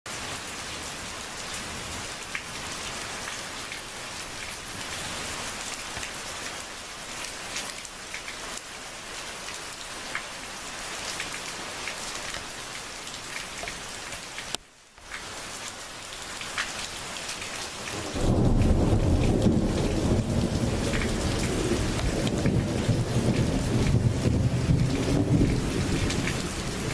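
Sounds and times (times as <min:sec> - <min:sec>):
steady rain falling: 0:00.1 - 0:26.9
thunder rumble: 0:17.9 - 0:26.9.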